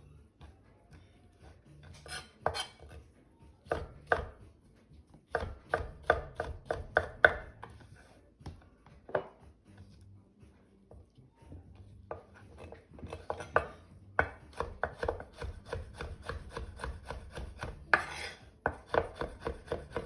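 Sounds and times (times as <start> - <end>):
knife chopping on cutting board: 2.0 - 3.0, 3.7 - 4.4, 5.3 - 7.8, 12.1 - 20.0.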